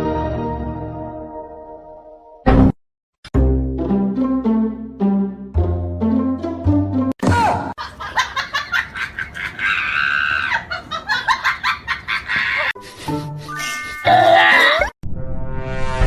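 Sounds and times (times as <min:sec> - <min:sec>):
music: 0:00.0 - 0:02.7, 0:03.3 - 0:07.2, 0:12.8 - 0:14.3
bursts of laughter: 0:07.8 - 0:12.8.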